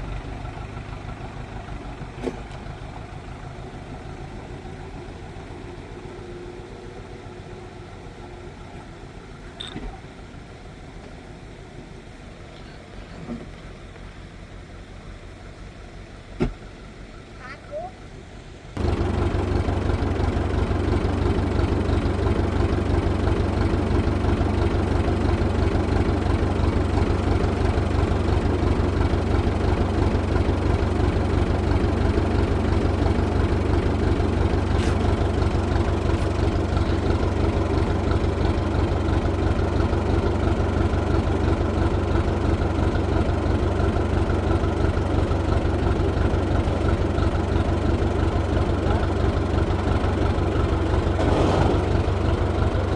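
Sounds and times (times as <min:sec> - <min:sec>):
engine idling: 0:00.0 - 0:52.9.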